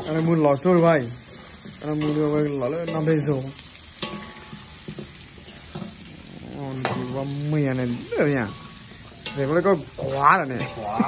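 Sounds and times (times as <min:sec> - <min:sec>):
meat sizzling in a wok: 0:00.0 - 0:11.0.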